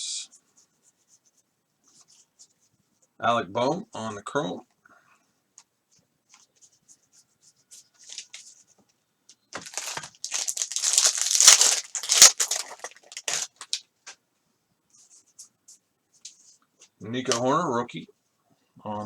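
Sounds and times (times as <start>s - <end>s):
soft rustling: 0.3s - 3.2s, 5.2s - 14.2s, 14.9s - 17.0s
wrapper torn open and crinkled: 9.6s - 13.8s.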